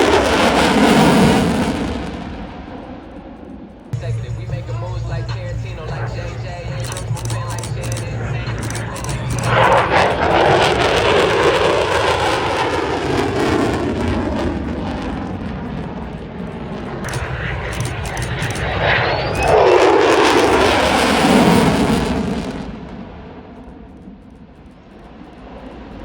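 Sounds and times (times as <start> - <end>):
aircraft flying past: 4.0 - 16.0, 16.7 - 22.8.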